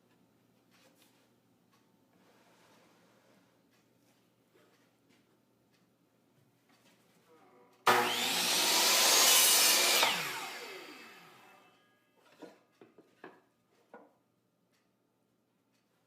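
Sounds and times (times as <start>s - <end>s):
electric saw cutting plywood: 7.9s - 11.8s.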